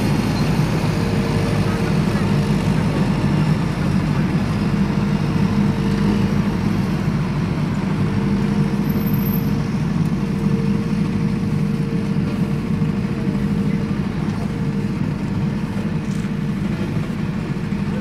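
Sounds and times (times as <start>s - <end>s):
low engine-like drone: 0.0s - 18.0s.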